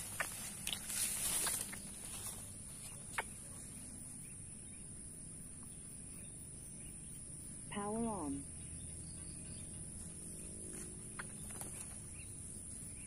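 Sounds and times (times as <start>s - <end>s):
rustling: 0.0s - 3.7s
insects droning: 0.0s - 13.0s.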